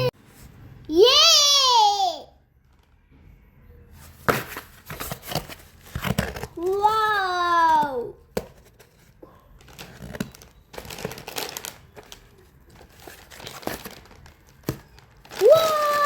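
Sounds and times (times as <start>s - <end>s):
wrapping crinkling and rustling: 8.6s - 16.0s.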